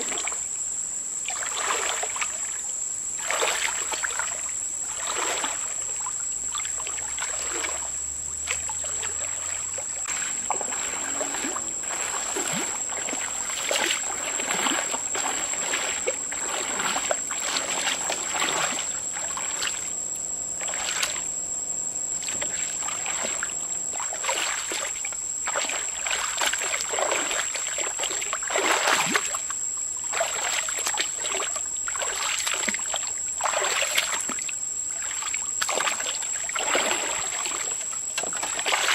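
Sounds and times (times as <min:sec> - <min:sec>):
water splashing and sloshing: 0:00.0 - 0:00.6, 0:01.2 - 0:38.9
high-pitched whine: 0:09.8 - 0:26.0.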